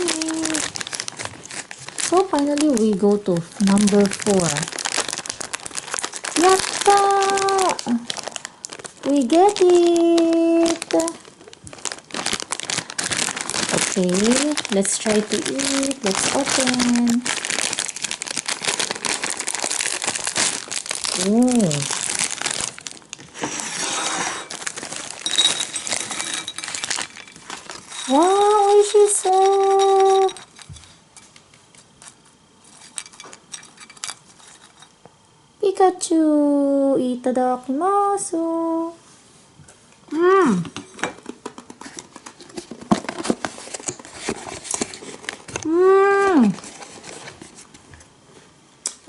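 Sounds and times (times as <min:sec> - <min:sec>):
snack pieces rattling in plastic bag: 0:00.0 - 0:23.4, 0:24.4 - 0:30.8, 0:41.9 - 0:47.4.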